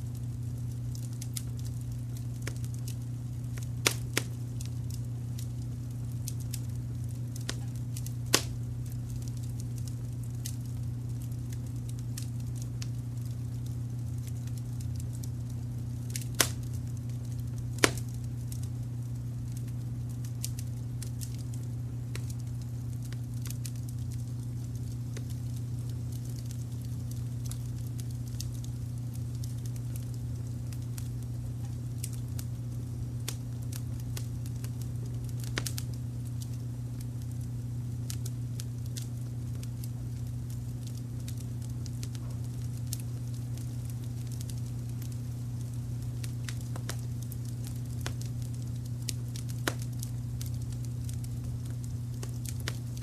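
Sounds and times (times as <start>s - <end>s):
low rumble of brown noise: 0.0s - 53.0s
wood fire crackling: 0.0s - 53.0s
loud sharp pops: 3.8s - 4.3s, 8.3s - 8.6s, 16.2s - 16.6s, 17.8s - 18.2s.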